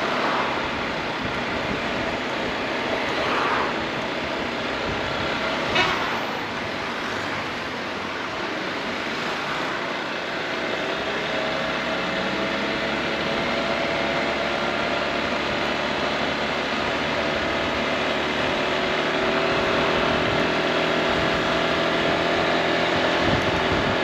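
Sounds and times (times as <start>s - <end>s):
road and wind noise: 0.0s - 24.0s
scooter engine running: 9.8s - 24.0s.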